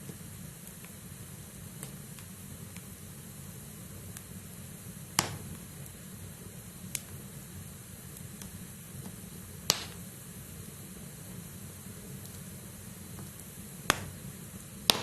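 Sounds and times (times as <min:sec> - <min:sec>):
logs crackling in fire: 0:00.0 - 0:15.0
low rumble of flame: 0:00.0 - 0:15.0
firewood snapping: 0:05.2 - 0:05.6, 0:08.4 - 0:10.0, 0:13.2 - 0:14.2.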